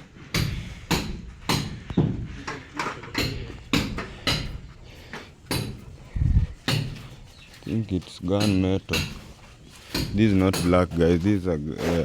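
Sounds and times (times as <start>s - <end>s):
hammer blows: 0.3s - 6.0s.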